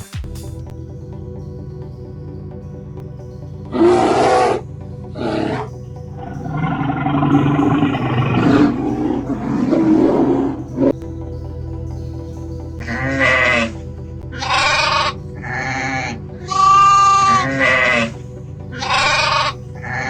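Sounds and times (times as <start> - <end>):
background music: 0.0 - 20.0
loud animal calls: 3.8 - 4.6, 14.4 - 18.1, 18.8 - 20.0.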